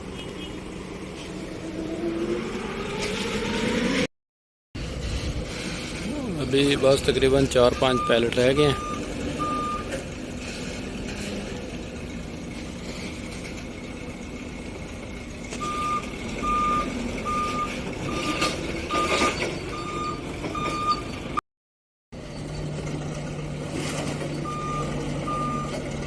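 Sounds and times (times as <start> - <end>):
engine hum: 0.0 - 4.1, 4.8 - 21.4, 22.2 - 26.0
forklift reversing alarm beeping: 7.5 - 9.9, 15.6 - 21.4, 24.4 - 26.0.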